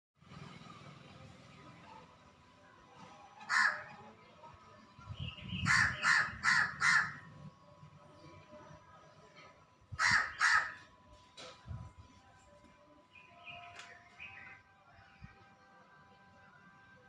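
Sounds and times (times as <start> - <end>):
crow cawing: 3.5 - 3.9, 5.7 - 7.2, 10.0 - 10.9.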